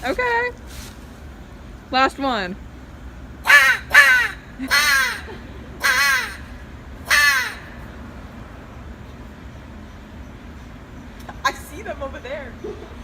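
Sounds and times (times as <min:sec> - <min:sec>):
crow call caws: 0:03.4 - 0:08.0.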